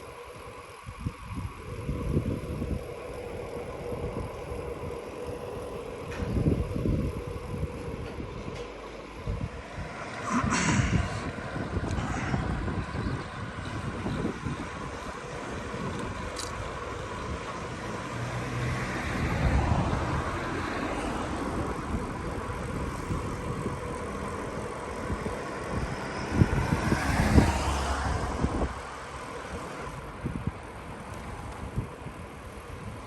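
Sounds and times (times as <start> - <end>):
wind and rolling noise: 0.0 - 33.0
motor vehicle passing: 9.2 - 31.9.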